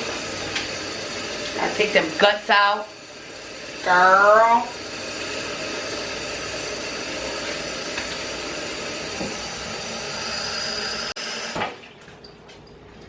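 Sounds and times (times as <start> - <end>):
tap water running in sink: 0.0 - 13.0.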